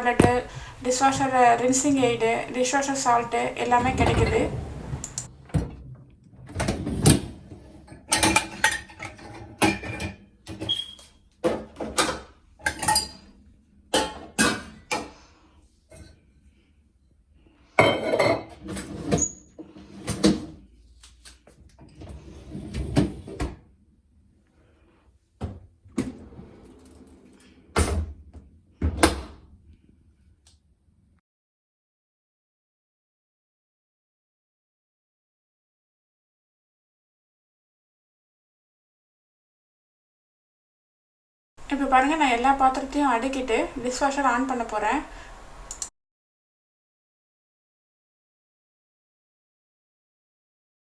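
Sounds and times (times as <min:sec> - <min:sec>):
crockery and cutlery clinking: 0:17.8 - 0:18.5.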